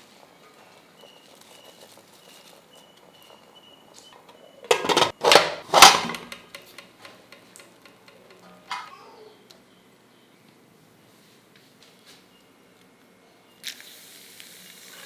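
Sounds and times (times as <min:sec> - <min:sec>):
metal cookware clattering: 0:04.2 - 0:09.2.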